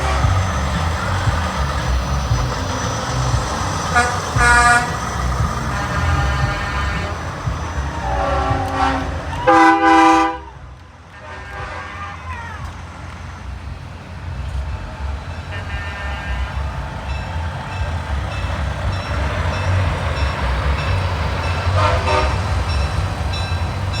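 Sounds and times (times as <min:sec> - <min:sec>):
truck horns blowing: 0:00.0 - 0:12.8, 0:15.4 - 0:24.0
truck engines rumbling: 0:00.0 - 0:24.0.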